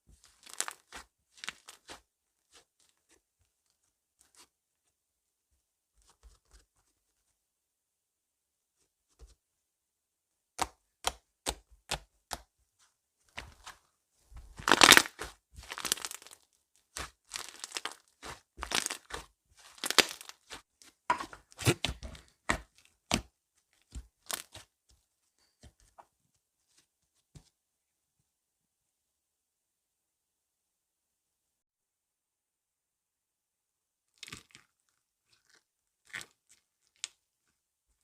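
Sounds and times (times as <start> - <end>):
slime clicking and squishing: 0.2 - 2.6, 14.6 - 20.6.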